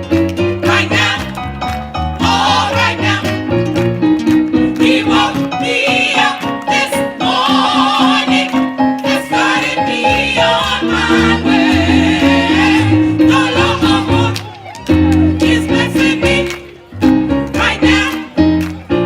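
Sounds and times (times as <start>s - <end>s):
instrumental backing with bass: 0.0s - 19.0s
gospel choir singing: 0.6s - 3.6s, 4.7s - 14.5s, 15.1s - 16.6s, 17.4s - 18.3s.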